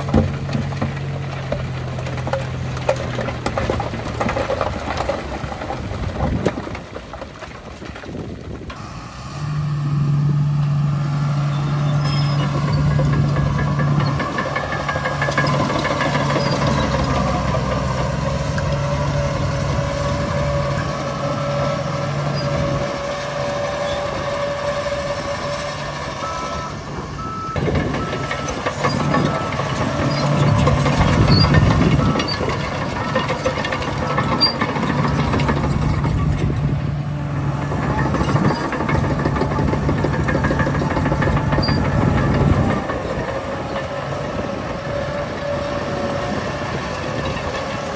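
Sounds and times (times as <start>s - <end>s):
bulldozer engine running: 0.0s - 47.9s
dump trucks working: 0.0s - 47.9s
reversing alarm beeping: 26.1s - 32.6s.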